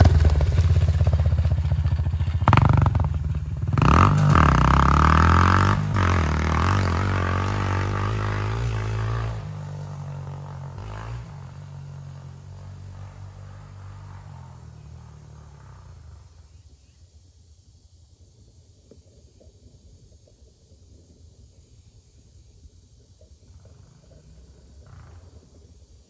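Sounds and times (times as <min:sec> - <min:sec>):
dirt bike engine revving: 0:00.0 - 0:15.9.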